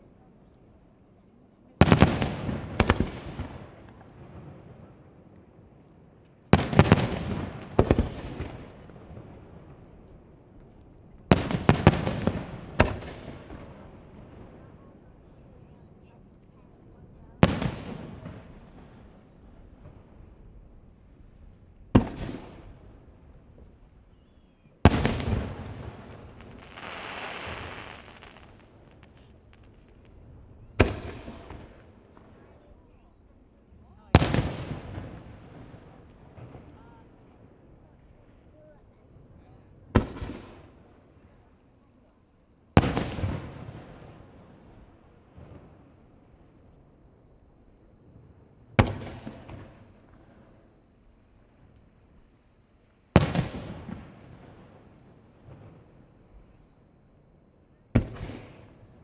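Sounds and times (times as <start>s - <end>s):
fireworks bursting: 1.8s - 4.2s, 10.7s - 14.6s, 21.9s - 33.0s
firework hiss: 25.1s - 31.4s.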